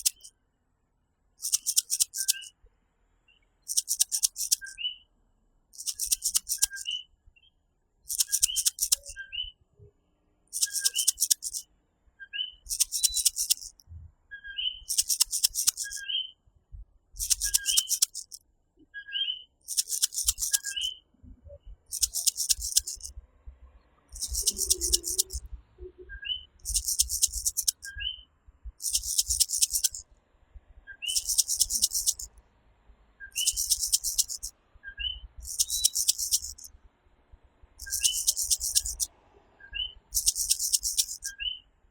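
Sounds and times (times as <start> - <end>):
tree frogs calling: 0.0 - 0.3, 1.4 - 2.5, 3.7 - 4.8, 5.8 - 6.9, 8.1 - 9.2, 10.6 - 11.6, 12.6 - 13.8, 14.7 - 16.1, 17.2 - 18.4, 19.6 - 21.0, 21.9 - 23.1, 24.1 - 28.2, 28.8 - 30.0, 30.9 - 32.3, 33.3 - 36.7, 37.8 - 39.1, 39.7 - 41.6.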